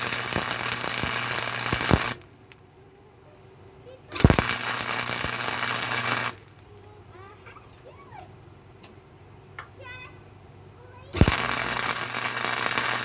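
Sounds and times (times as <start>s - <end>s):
welder crackling: 0.0s - 3.0s, 3.9s - 7.9s, 11.0s - 13.0s.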